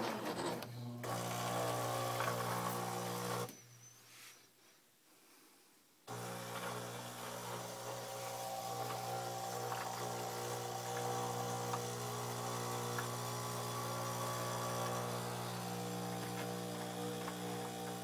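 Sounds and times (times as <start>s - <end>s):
coffee machine humming: 1.0s - 3.5s, 6.1s - 18.0s.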